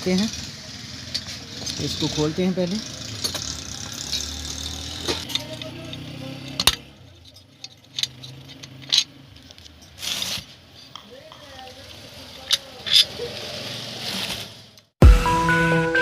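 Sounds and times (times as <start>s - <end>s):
hand tools clicking and knocking: 1.0s - 10.0s, 12.4s - 13.2s.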